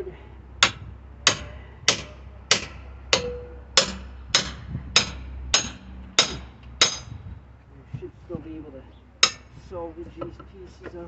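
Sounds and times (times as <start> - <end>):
hammer striking metal bar: 0.6 - 7.1, 9.2 - 9.5.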